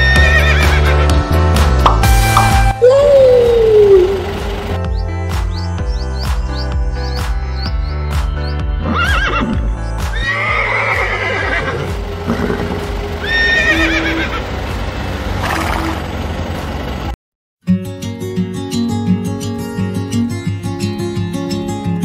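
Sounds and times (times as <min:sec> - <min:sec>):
horse whinnying: 0:00.0 - 0:01.0, 0:08.8 - 0:14.4
background music: 0:00.0 - 0:15.5.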